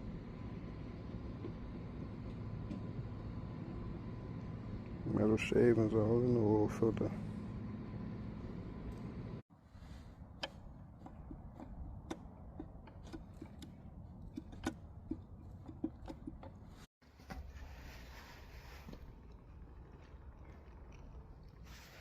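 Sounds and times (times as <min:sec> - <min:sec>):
light clicks and taps: 0:10.4 - 0:17.4.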